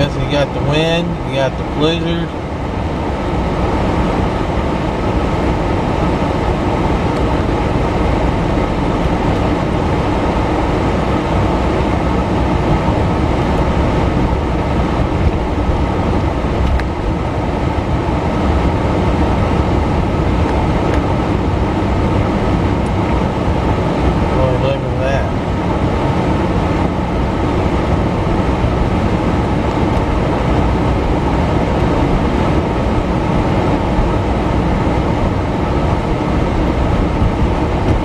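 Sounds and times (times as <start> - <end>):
road and wind noise in car: 0.0 - 38.0.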